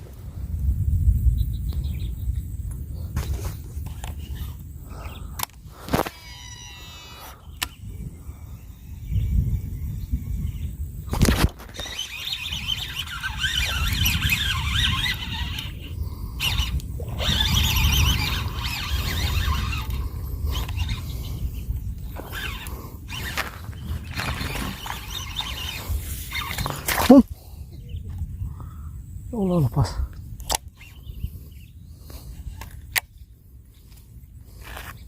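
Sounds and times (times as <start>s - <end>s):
fishing reel brake whine: 3.3s - 27.1s
fishing reel spool click: 11.2s - 21.1s.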